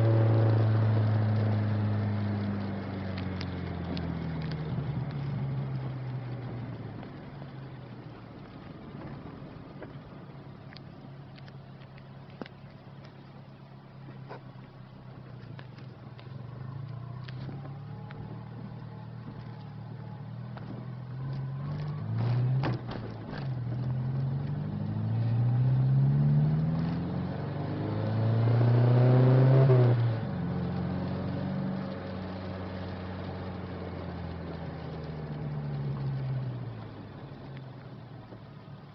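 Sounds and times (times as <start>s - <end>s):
car engine revving: 0.0s - 10.2s, 13.9s - 36.6s
exhaust pops: 14.0s - 25.5s.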